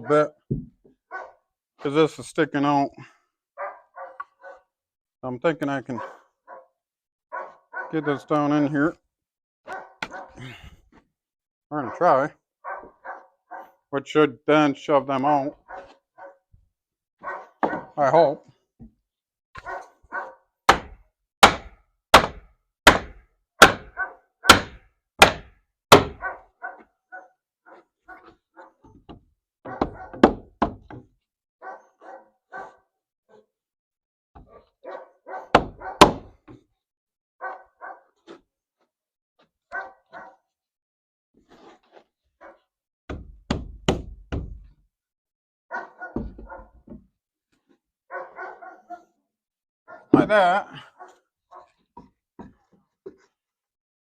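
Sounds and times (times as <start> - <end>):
dog barking: 1.1 - 1.4, 3.6 - 4.7, 5.9 - 8.3, 9.7 - 10.4, 11.8 - 13.8, 15.6 - 16.5, 17.2 - 18.0, 19.6 - 20.5, 23.8 - 24.6, 26.1 - 28.8, 29.6 - 30.2, 31.6 - 33.5, 34.4 - 36.2, 37.4 - 38.2, 39.7 - 40.5, 42.4 - 42.7, 45.7 - 46.8, 48.1 - 49.2, 49.9 - 50.2, 50.8 - 51.8
heavy blows on wooden board: 20.7 - 26.2, 29.1 - 31.1, 35.6 - 36.6, 43.1 - 44.7.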